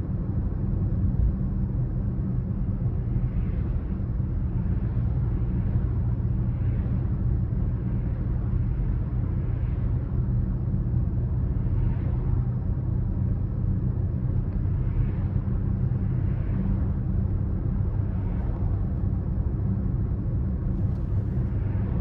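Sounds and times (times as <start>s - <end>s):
car engine cruising: 10.0s - 22.0s.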